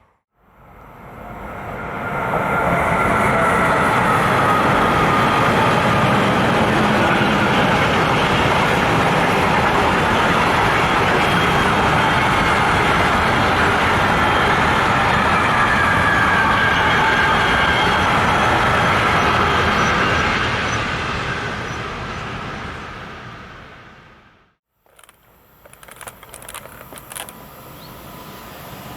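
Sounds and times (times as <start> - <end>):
train wheels rolling on rails: 1.8 - 20.7, 24.8 - 28.9.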